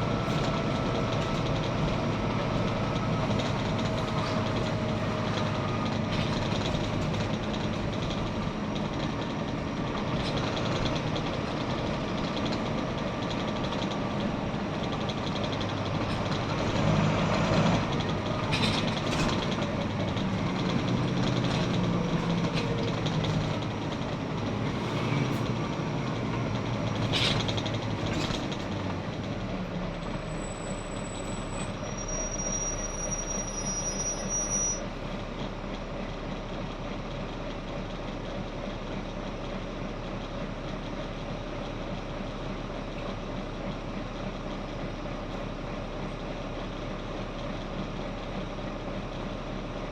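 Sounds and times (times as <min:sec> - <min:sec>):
road and body noise: 0:00.0 - 0:37.3
bus engine running: 0:00.0 - 0:49.9
thin high squeals: 0:30.3 - 0:34.9.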